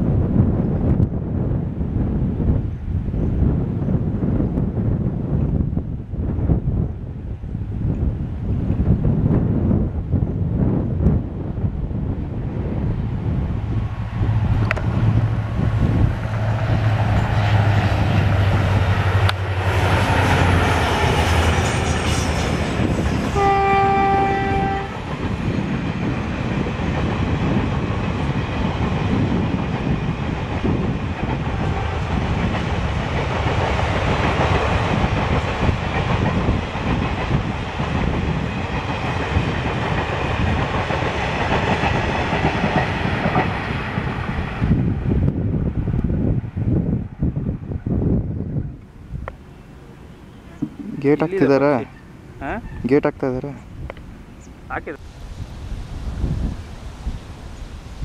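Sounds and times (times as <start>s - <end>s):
passenger coaches rolling past: 0.0s - 58.0s
diesel locomotive engine running: 11.2s - 47.4s
locomotive horn blast: 23.2s - 25.0s.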